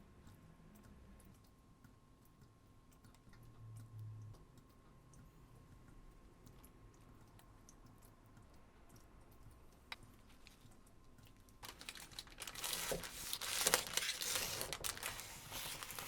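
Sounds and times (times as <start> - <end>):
crinkling and rustling: 10.2 - 16.0.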